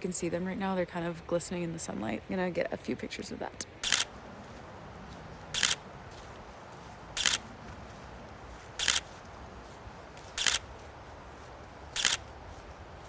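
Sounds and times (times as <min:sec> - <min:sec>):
camera shutter clicks: 0:03.8 - 0:04.2, 0:05.6 - 0:05.8, 0:07.2 - 0:07.5, 0:08.8 - 0:09.2, 0:10.4 - 0:10.7, 0:12.0 - 0:12.3.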